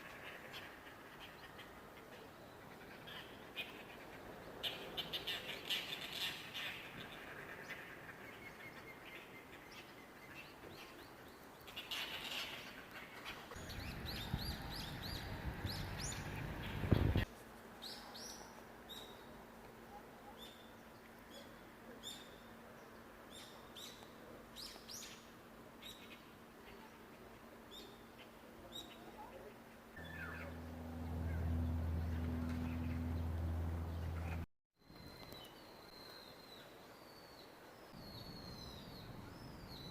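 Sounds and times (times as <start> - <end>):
birds chirping: 0.4 - 17.3, 27.7 - 39.9
low rumbling noise: 30.0 - 34.4.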